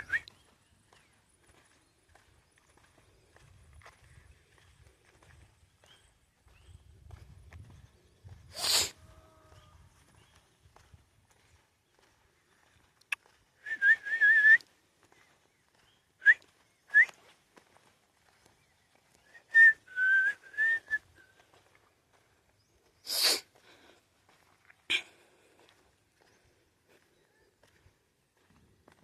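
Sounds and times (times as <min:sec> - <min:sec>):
person whistling: 0:00.0 - 0:00.3, 0:13.6 - 0:14.6, 0:16.2 - 0:17.2, 0:19.3 - 0:21.3
burst of breath: 0:08.5 - 0:09.0, 0:23.0 - 0:24.0.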